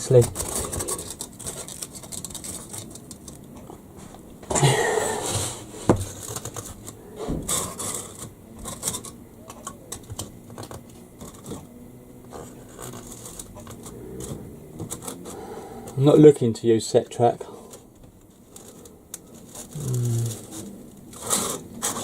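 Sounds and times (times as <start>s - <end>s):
plastic track pieces clicking: 0.0s - 3.7s
scraping: 0.0s - 16.2s, 17.5s - 22.0s.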